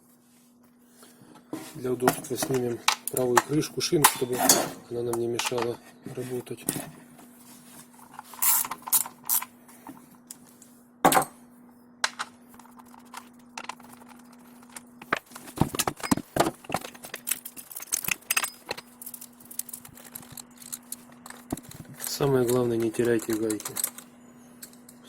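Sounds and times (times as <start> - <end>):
faint steady hum: 0.0 - 25.0
tool and nuts clicking: 17.1 - 24.0.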